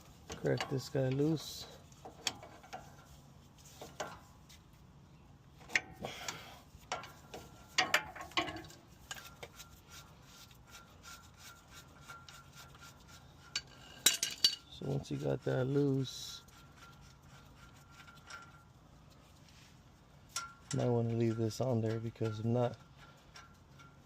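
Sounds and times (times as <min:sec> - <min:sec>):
wrench clicking and rubbing on metal: 0:00.0 - 0:04.6, 0:05.6 - 0:19.5, 0:20.3 - 0:24.0.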